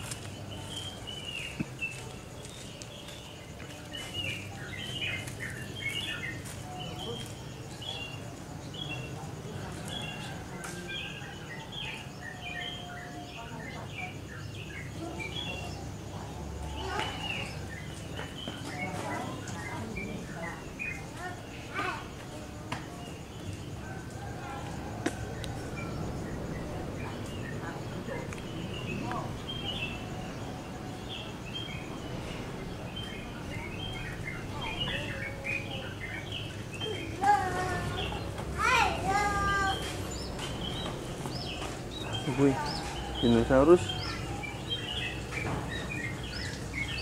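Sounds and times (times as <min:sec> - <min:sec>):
small birds chirping: 0:00.0 - 0:47.0
steady low rumble: 0:24.7 - 0:36.8.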